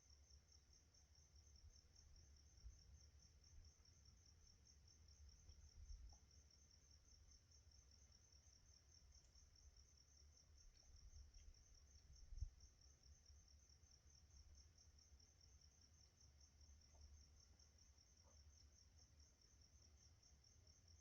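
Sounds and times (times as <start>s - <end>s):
night insects chirping: 0.0s - 21.0s
faint low rumble: 1.4s - 15.0s.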